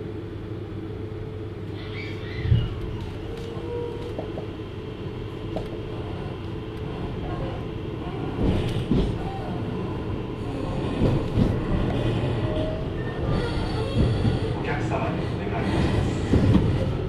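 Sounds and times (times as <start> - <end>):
train wheels rumbling on rails: 2.3 - 17.0
train thumps: 8.3 - 9.4, 13.6 - 14.6, 15.8 - 17.0.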